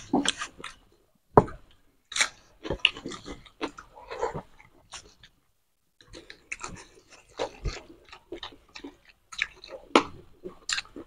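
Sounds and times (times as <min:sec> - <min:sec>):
wet chewing: 0:02.1 - 0:05.4, 0:06.0 - 0:11.0.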